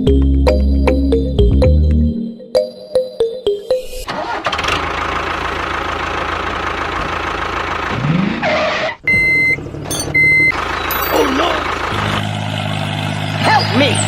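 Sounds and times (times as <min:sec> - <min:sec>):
vehicle engine running: 0:04.9 - 0:08.0, 0:10.5 - 0:14.0.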